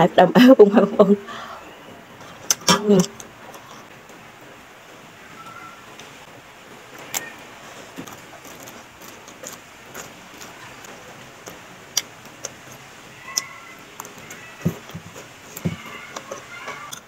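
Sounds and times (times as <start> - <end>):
beans snapping and crunching: 7.9 - 17.0.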